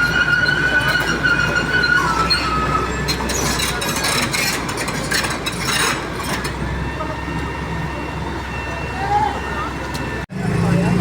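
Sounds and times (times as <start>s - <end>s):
high metallic squeal: 0.0s - 6.6s.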